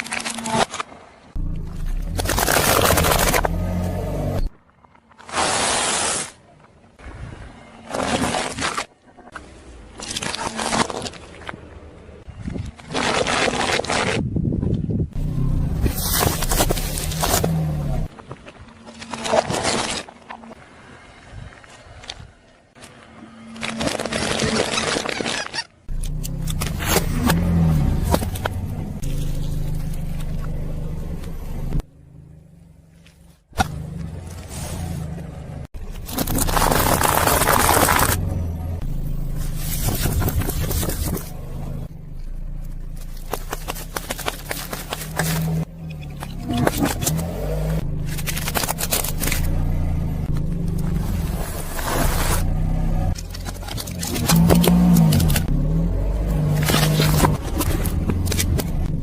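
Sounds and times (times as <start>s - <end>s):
car tyre crushing objects: 0.0s - 6.4s, 7.6s - 14.4s, 15.2s - 20.6s, 22.8s - 31.8s, 32.8s - 59.0s
tyre crushing objects: 15.8s - 20.1s, 35.8s - 38.4s, 42.8s - 49.6s.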